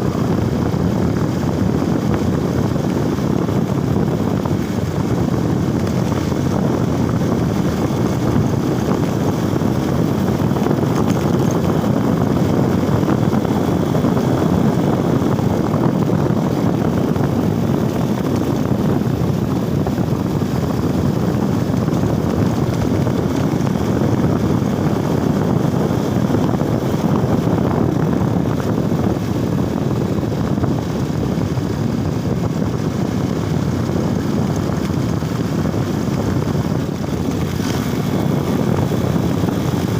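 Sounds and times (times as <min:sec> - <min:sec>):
motorcycle engine: 0:00.0 - 0:39.9
road noise: 0:00.0 - 0:39.9
wind rush over microphone: 0:00.0 - 0:39.9.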